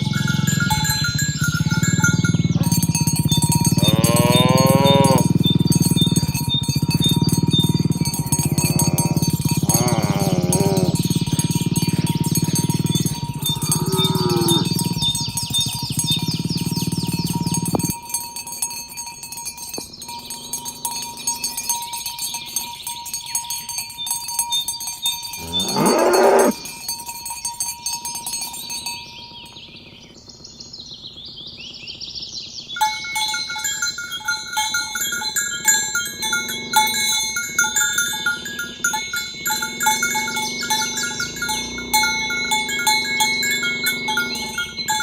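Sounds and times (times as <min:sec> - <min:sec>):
cattle mooing: 0:00.0 - 0:15.4, 0:25.4 - 0:26.7, 0:36.2 - 0:45.0
high chirping of birds or insects: 0:00.0 - 0:18.2, 0:19.2 - 0:45.0
bells ringing: 0:00.0 - 0:30.0, 0:32.8 - 0:45.0.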